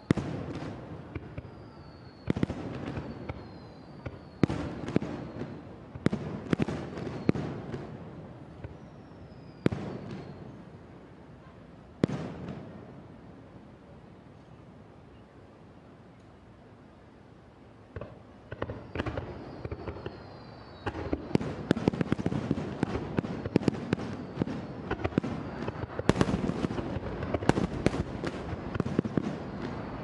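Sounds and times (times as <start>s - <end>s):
falling firework whistles: 0.0s - 10.7s, 18.0s - 30.0s.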